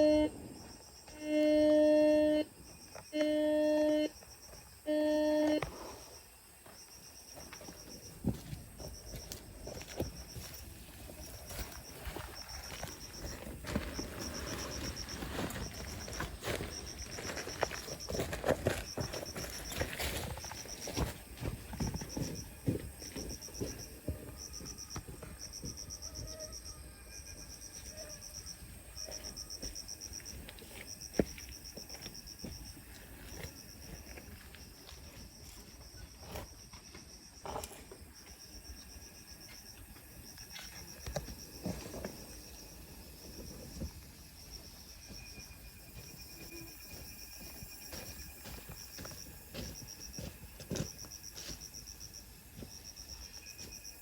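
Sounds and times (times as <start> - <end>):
insect chirping: 0.0 - 54.0.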